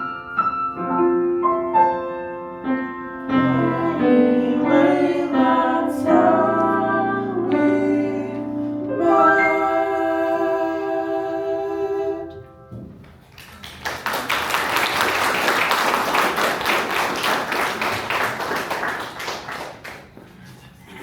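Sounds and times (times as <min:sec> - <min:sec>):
audience clapping: 0:13.0 - 0:20.7.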